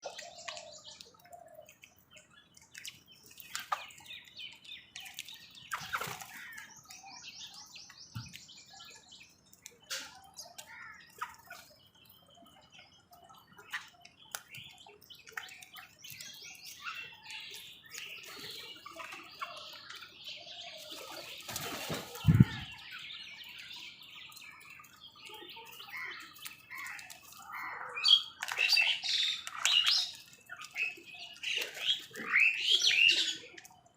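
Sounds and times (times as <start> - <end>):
birds chirping and calling: 0.0 - 33.9
wings flapping: 21.0 - 22.8.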